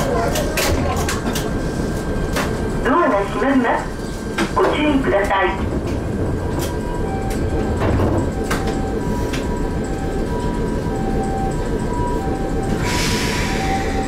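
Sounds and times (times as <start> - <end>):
electric train rumbling: 0.0 - 14.0
two-tone electronic warning tone: 6.8 - 14.0
air hiss burst: 12.8 - 13.6.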